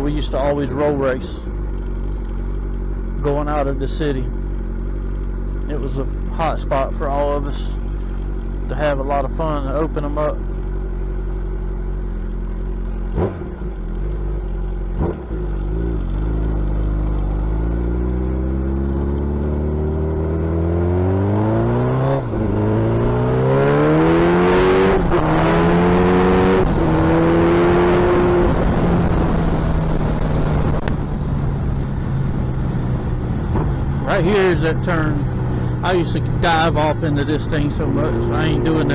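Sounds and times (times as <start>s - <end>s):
motorcycle accelerating through gears: 10.5s - 38.9s.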